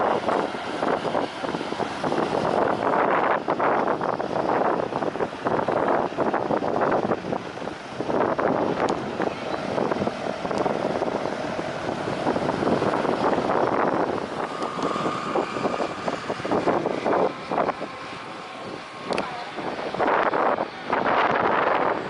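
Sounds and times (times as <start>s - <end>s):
jet engine noise: 0.0s - 22.0s
wind buffeting microphone: 0.0s - 22.0s
faint rising whine: 6.7s - 22.0s.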